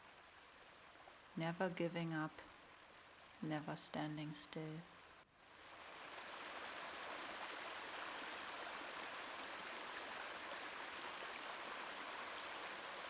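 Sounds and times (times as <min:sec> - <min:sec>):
stream rushing over rocks: 0:05.6 - 0:13.0.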